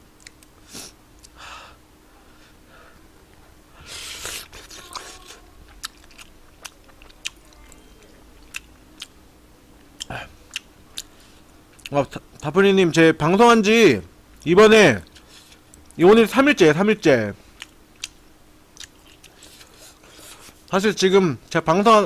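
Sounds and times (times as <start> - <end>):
person chewing: 0.2 - 1.4, 3.8 - 9.2, 9.8 - 12.0, 17.5 - 20.7.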